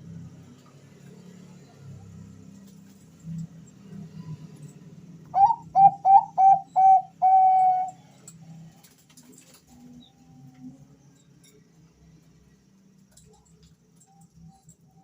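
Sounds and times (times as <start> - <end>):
dove cooing: 5.4 - 8.0.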